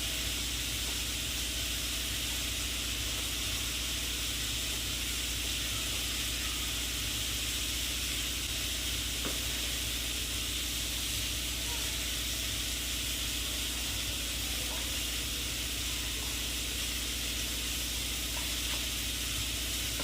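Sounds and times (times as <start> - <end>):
pot hissing on stove: 0.0 - 20.0.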